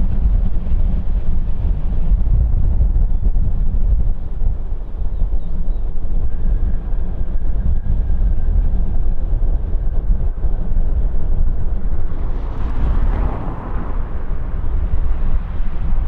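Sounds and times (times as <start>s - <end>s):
jet engine rumble: 0.0s - 16.0s
jet engine hiss: 11.6s - 16.0s.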